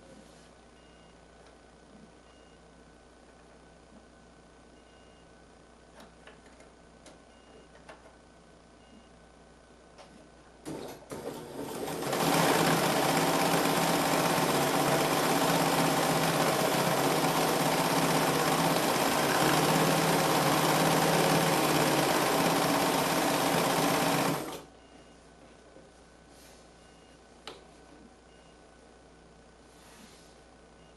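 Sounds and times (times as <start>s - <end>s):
sewing machine stitching: 10.7s - 24.6s.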